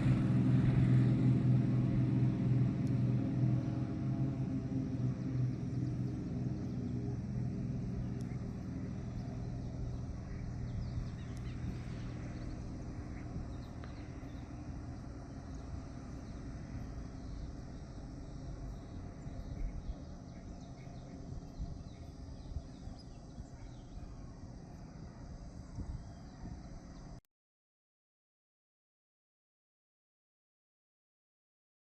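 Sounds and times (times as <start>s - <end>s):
airplane engine and propeller droning: 0.0s - 27.2s.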